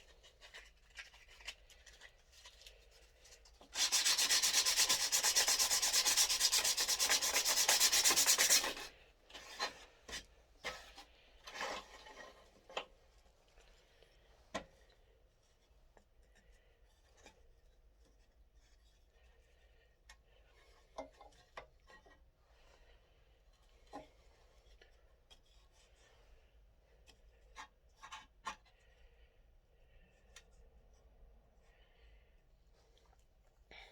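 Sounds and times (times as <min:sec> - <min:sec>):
wood being sanded: 0:03.8 - 0:08.8.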